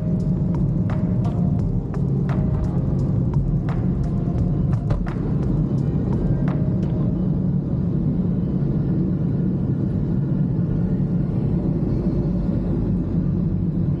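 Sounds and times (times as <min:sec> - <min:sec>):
car cabin road and engine rumble: 0:00.0 - 0:14.0.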